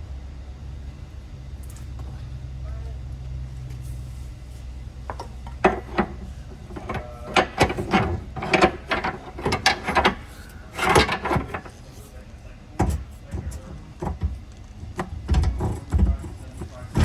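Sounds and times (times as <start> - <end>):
steady low hum: 0.0 - 17.0
metallic clicks and clanks of tools: 5.1 - 11.7.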